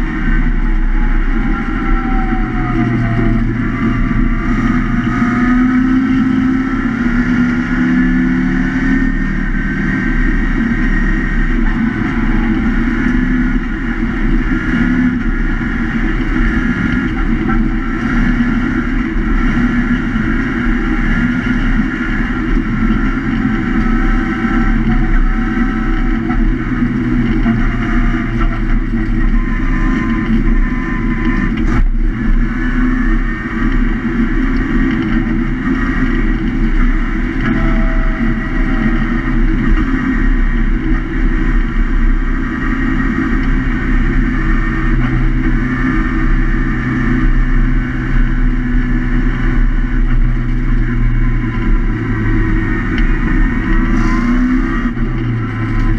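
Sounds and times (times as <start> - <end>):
racing car engine revving: 0.0 - 55.9.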